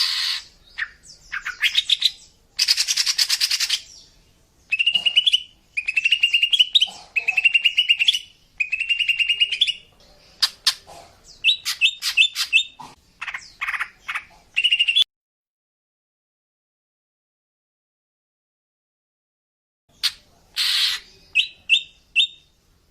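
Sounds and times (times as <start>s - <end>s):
bird singing trills and whistles: 0.0s - 15.1s, 20.0s - 22.5s.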